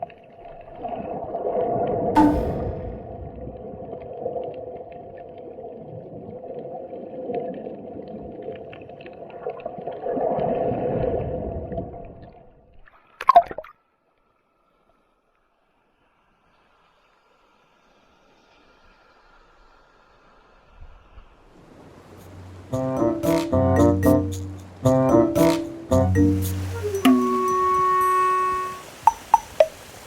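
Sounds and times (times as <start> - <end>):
churning gurgling water underwater: 0.0 - 12.6.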